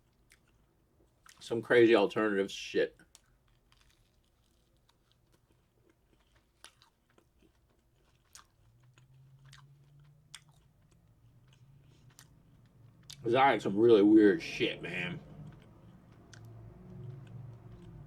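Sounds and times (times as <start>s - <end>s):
person chewing: 0.0s - 1.4s, 3.0s - 13.7s, 14.3s - 18.0s
faint low hum: 0.0s - 18.0s
soft crunchy clicks: 3.0s - 13.3s, 15.2s - 18.0s.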